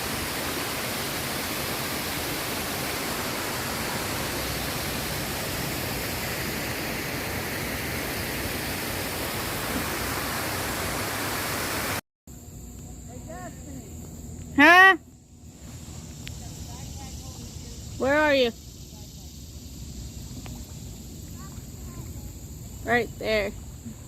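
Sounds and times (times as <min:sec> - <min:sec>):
water rushing over a dam: 0:00.0 - 0:12.0.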